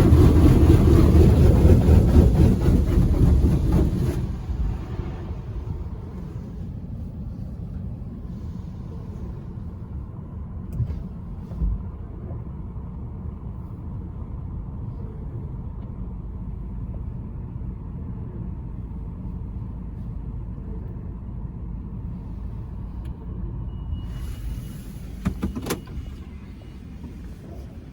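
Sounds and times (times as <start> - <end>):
car engine idling: 0.0 - 10.7.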